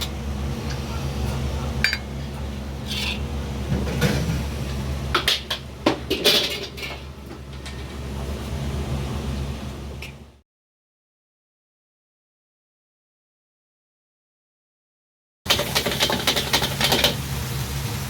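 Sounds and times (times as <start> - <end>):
low room hum: 0.0 - 10.4
dishes and tableware clinking: 1.8 - 4.4, 5.2 - 7.0.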